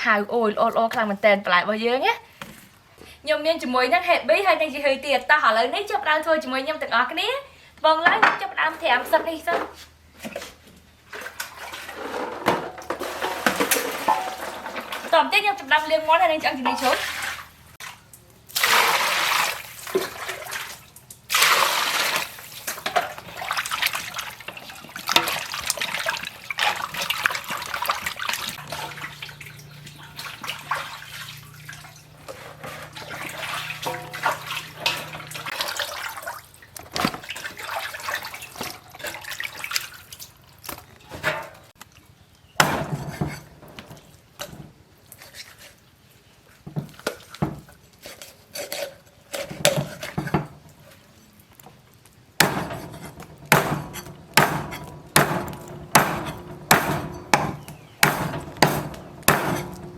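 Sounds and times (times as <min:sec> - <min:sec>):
water splashing and pouring: 0:11.0 - 0:15.3, 0:16.6 - 0:41.4
water drips: 0:13.6 - 0:42.6.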